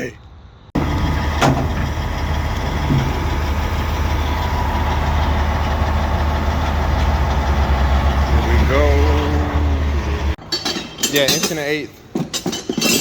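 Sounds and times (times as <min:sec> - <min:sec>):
heavy engine idling: 0:00.8 - 0:10.4.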